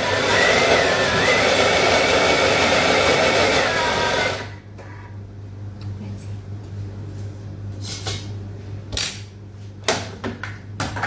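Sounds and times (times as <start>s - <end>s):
blender running: 0.0s - 4.7s.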